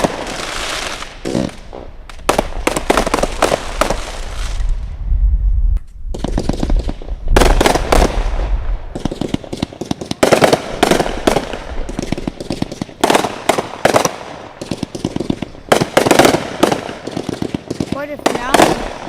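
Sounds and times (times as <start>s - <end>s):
firework bangs and crackling: 0.0s - 19.0s
deep rumble: 4.6s - 6.2s.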